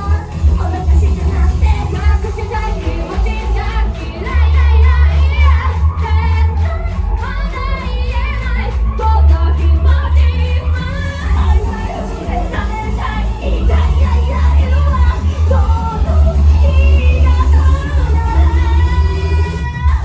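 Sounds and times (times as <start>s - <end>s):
pop backing track with drums: 0.0s - 10.0s
high voices singing: 0.0s - 20.0s.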